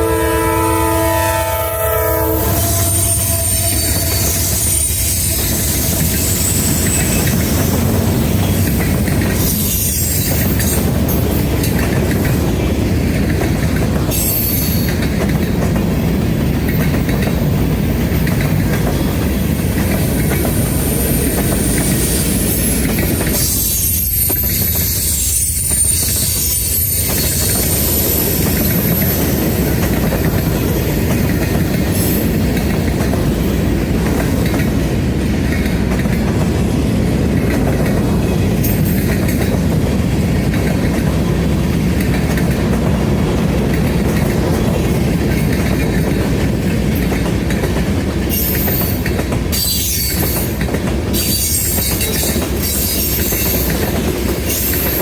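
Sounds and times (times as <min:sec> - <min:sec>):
high-pitched wheel squeal: 0:02.0 - 0:07.8, 0:20.4 - 0:29.4
freight train wheels clicking: 0:02.2 - 0:55.0.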